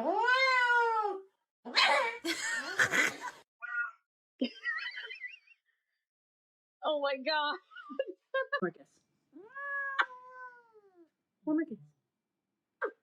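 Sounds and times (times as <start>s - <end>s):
cat meowing: 0.0s - 1.2s, 9.4s - 11.1s.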